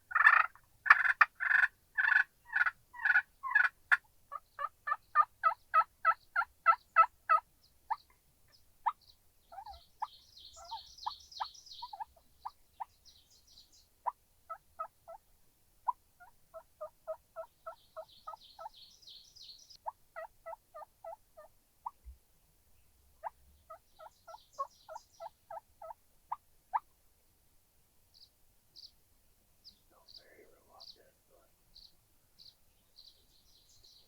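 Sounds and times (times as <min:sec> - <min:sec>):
turkeys yelping: 0:00.1 - 0:04.0.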